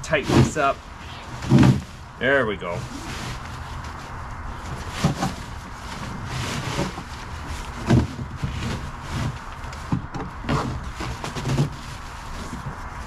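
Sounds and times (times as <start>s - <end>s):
knocks and clunks from hands working: 1.4s - 1.9s, 7.8s - 11.8s.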